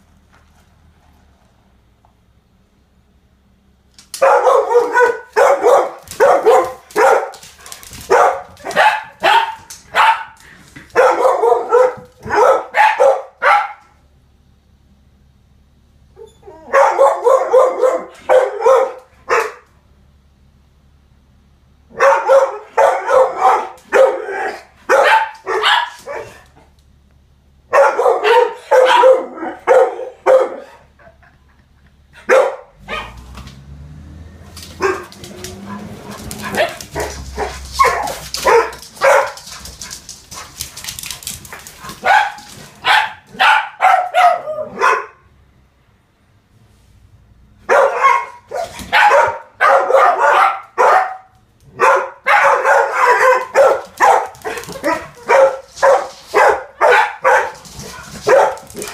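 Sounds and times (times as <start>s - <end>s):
dogs barking: 4.2s - 14.0s, 16.6s - 19.7s, 21.9s - 26.6s, 27.7s - 31.0s, 32.2s - 33.4s, 34.6s - 40.8s, 41.4s - 45.3s, 47.6s - 58.9s
garbage truck rumble: 32.7s - 39.2s.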